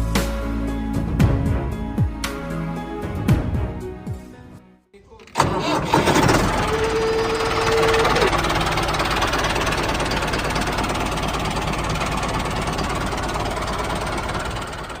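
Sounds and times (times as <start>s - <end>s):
small engine knocking rattle: 5.4s - 15.0s.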